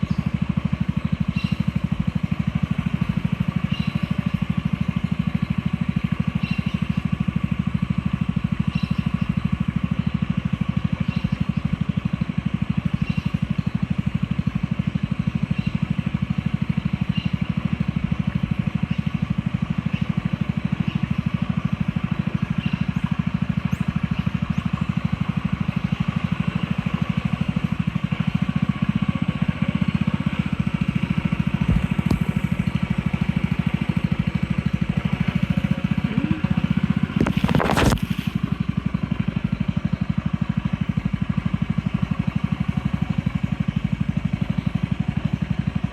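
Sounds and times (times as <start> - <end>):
boat motor running: 0.0 - 45.9
faint high chirp: 3.7 - 4.4, 6.3 - 7.1, 8.7 - 9.4.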